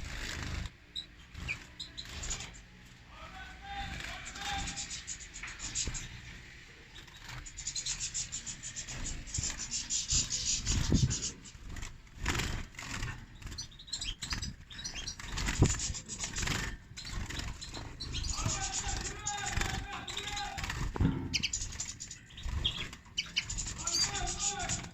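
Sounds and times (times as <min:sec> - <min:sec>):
goldfinches twittering: 0:00.0 - 0:24.9
low thumps: 0:20.6 - 0:21.9.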